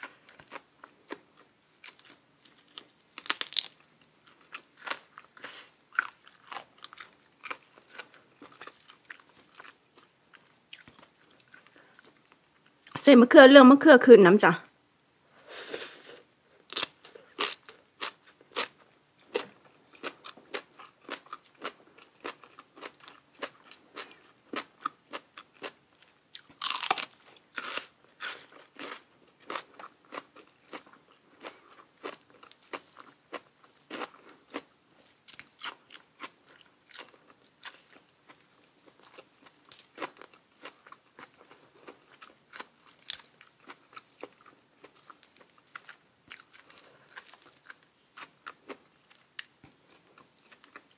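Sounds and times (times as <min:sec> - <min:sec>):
crunching and chewing food: 0:00.0 - 0:13.0, 0:16.0 - 0:50.9.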